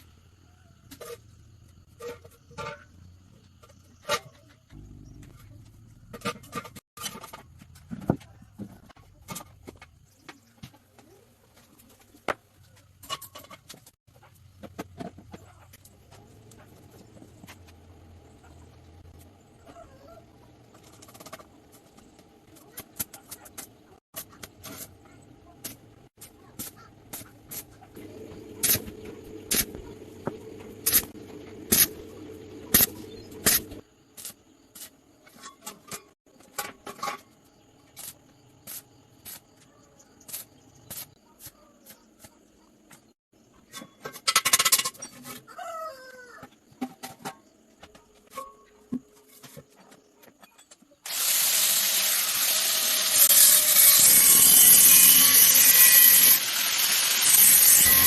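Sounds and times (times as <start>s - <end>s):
low hum: 28.0s - 33.8s.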